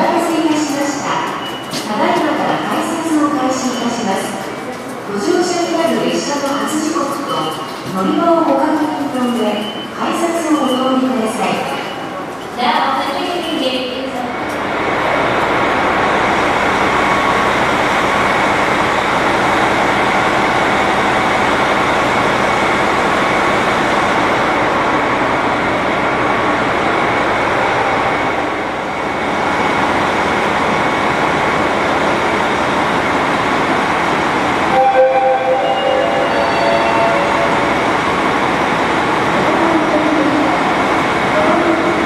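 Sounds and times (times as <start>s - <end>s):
train rumble and hiss: 0.0s - 42.0s.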